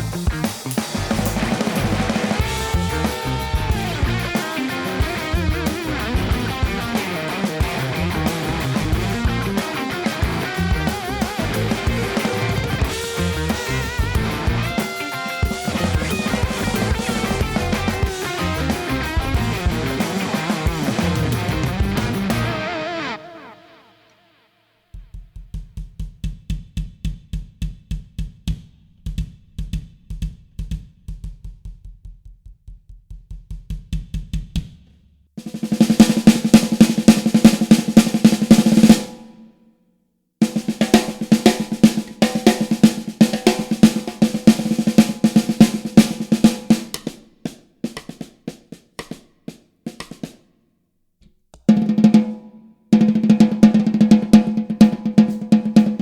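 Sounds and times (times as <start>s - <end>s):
bass drum strokes: 0.0s - 4.4s, 5.0s - 7.0s, 7.6s - 9.6s, 10.2s - 14.8s, 15.7s - 20.1s, 20.7s - 22.6s
snare drum rolls: 0.0s - 22.7s, 33.7s - 39.4s, 40.4s - 50.5s, 51.7s - 56.0s.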